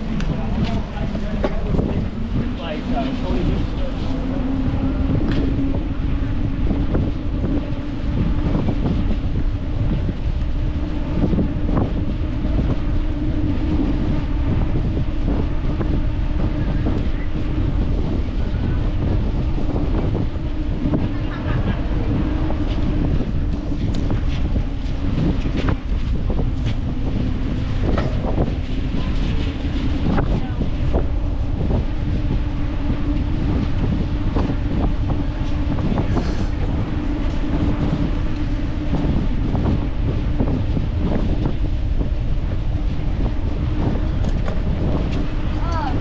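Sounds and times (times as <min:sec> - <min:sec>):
wind rushing over microphone: 0:00.0 - 0:46.0
bicycle clicks and rattles: 0:43.8 - 0:45.8.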